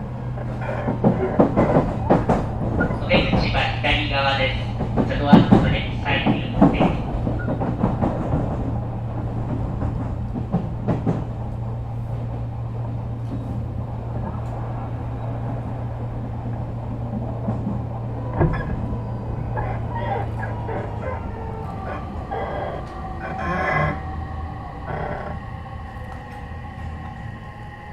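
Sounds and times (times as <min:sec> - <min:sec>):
electric train hum: 0:00.0 - 0:27.9
knocks: 0:00.4 - 0:11.5.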